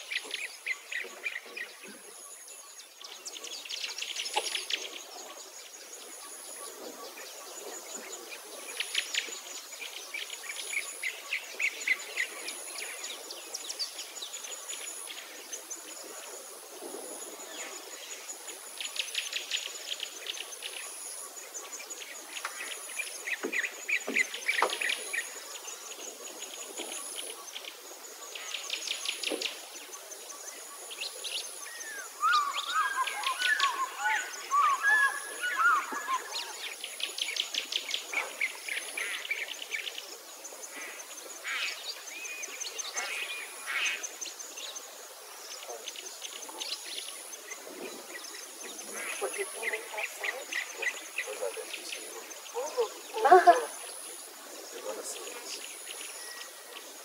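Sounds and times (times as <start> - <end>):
birds trilling: 31.7 - 36.8.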